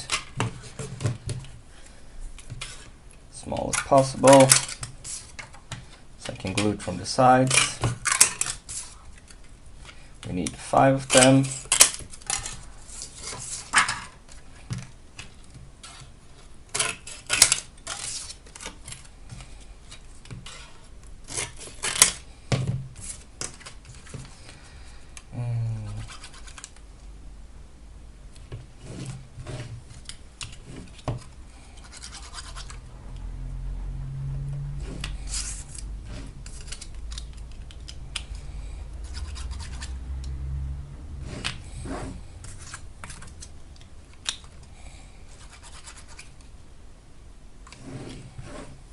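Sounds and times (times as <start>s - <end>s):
plastic sheets clicking and scraping: 0.0s - 1.6s, 2.4s - 24.6s, 25.9s - 26.8s, 34.8s - 38.4s, 41.2s - 44.7s.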